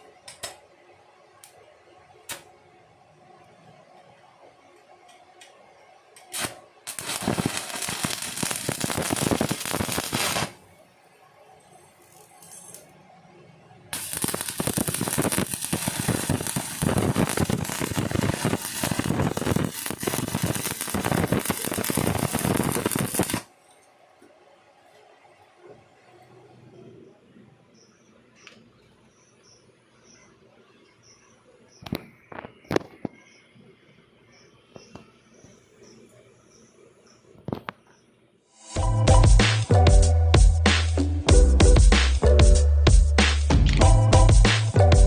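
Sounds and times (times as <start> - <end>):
welding arc crackling: 6.2 - 10.8, 11.5 - 13.0, 13.9 - 23.5.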